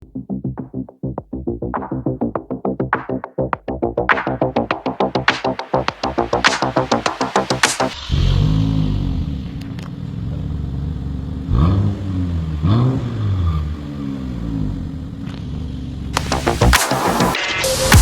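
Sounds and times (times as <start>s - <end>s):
car engine idling: 7.6s - 16.6s.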